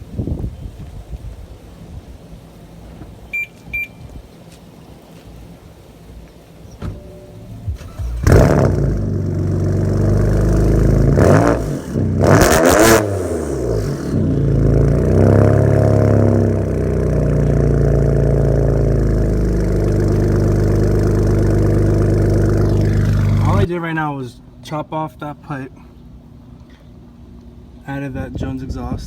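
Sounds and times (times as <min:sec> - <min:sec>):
car engine revving and idling: 0:07.0 - 0:23.7.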